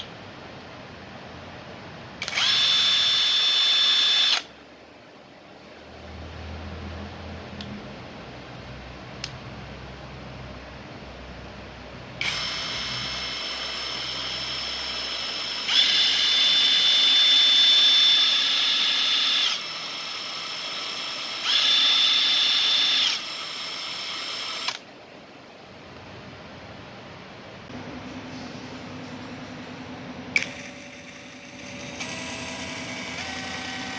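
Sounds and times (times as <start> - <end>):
impact wrench motor whine: 2.2 - 4.5, 12.2 - 24.8, 30.4 - 33.9.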